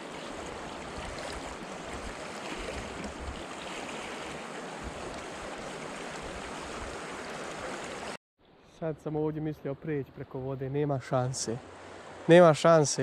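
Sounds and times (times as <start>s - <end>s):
river rushing: 0.0s - 8.2s, 11.4s - 13.0s.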